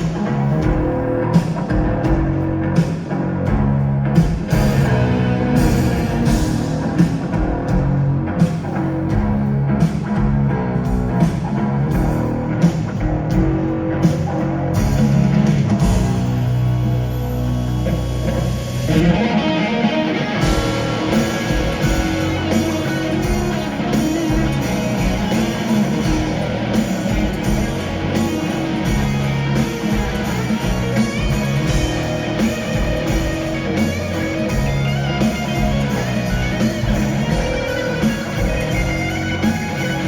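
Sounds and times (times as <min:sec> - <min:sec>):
band with steady beat: 0:00.0 - 0:17.0, 0:17.9 - 0:40.0
electric guitar solo: 0:18.0 - 0:40.0.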